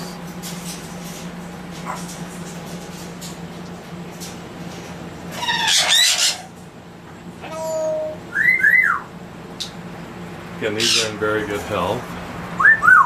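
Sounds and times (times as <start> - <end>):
parrots squawking and whistling: 5.3 - 6.6, 7.4 - 9.1, 10.7 - 11.2, 12.6 - 13.0.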